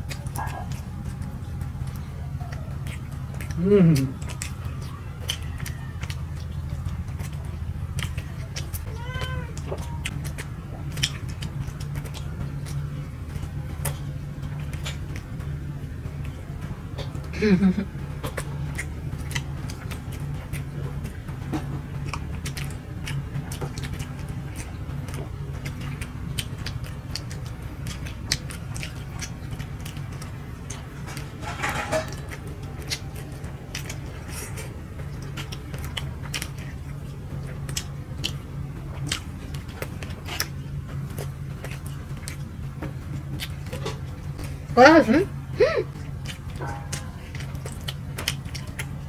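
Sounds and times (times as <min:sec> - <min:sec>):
tractor engine drone: 0:00.0 - 0:09.0, 0:09.6 - 0:49.0
people chewing rice cakes: 0:00.0 - 0:49.0.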